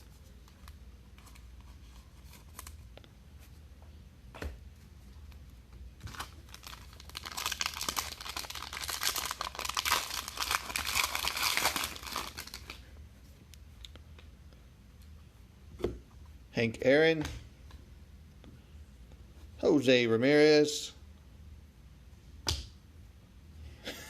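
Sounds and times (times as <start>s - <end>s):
card pack wrapper crinkling: 6.0s - 12.8s.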